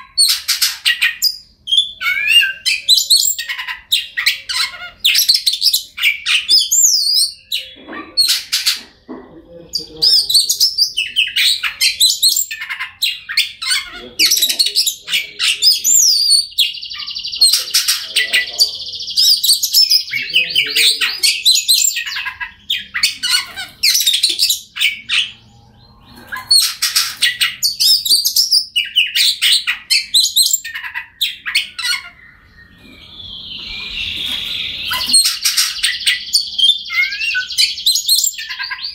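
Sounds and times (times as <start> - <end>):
bird singing whistled phrases: 1.0 - 7.8, 27.3 - 38.9.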